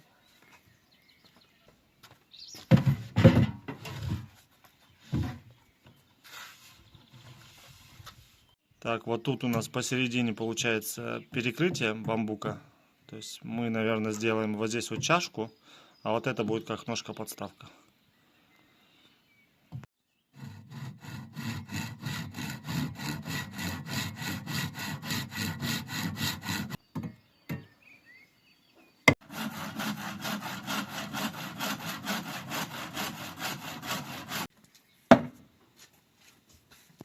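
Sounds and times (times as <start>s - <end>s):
hand saw cutting bamboo: 20.4s - 26.8s, 29.2s - 34.5s.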